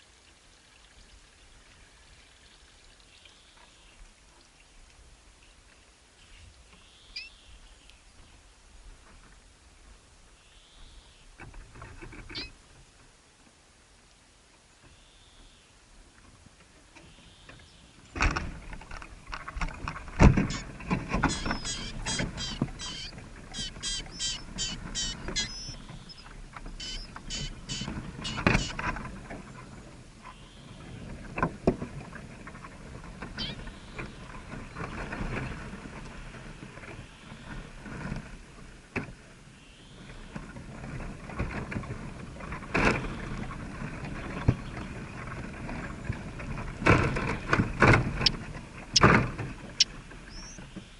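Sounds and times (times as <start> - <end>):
small birds chirping: 6.2 - 8.4, 12.3 - 12.5, 20.4 - 28.8, 33.4 - 34.9, 48.2 - 49.2, 49.8 - 50.9.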